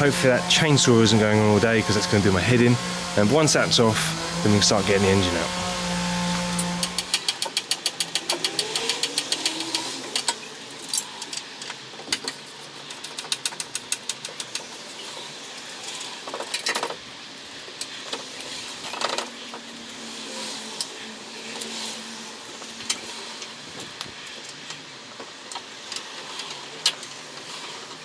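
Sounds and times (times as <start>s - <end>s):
metal scraping: 0.0s - 7.3s
ratchet clicking: 5.5s - 11.4s.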